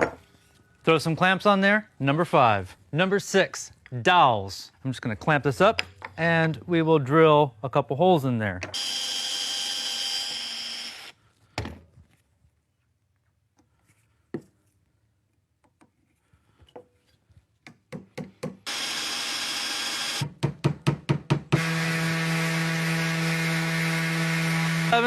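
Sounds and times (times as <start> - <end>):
power drill boring into wood: 8.7 - 11.2, 18.7 - 20.3, 21.6 - 25.0
power tool humming: 8.8 - 11.1, 18.6 - 20.3, 21.5 - 25.0.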